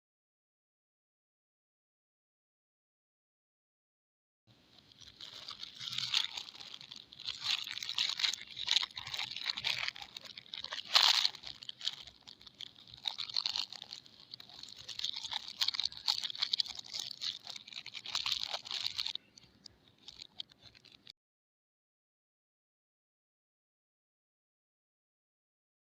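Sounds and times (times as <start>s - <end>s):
packaging crinkling: 4.8s - 21.1s.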